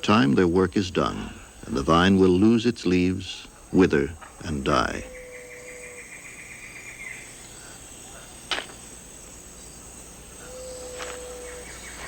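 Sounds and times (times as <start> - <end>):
high insect drone: 0.0 - 12.0
downward-sweeping animal call: 10.4 - 12.0.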